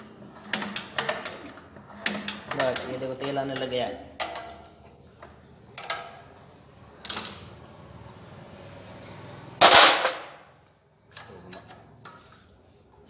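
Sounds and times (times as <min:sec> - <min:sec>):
loud metal bang: 0:09.6 - 0:10.5.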